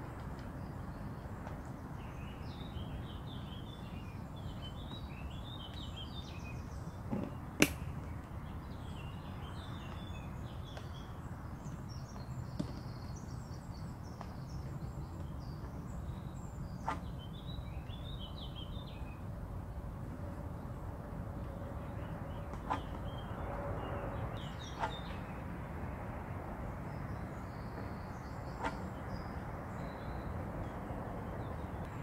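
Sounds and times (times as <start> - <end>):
small birds chirping: 0.0 - 20.0, 21.4 - 25.6, 26.6 - 32.0.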